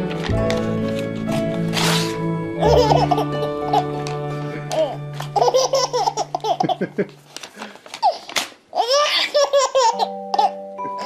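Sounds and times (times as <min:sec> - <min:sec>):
background music: 0:00.0 - 0:07.4, 0:09.4 - 0:11.0
baby laughing: 0:02.6 - 0:07.2, 0:08.0 - 0:10.6.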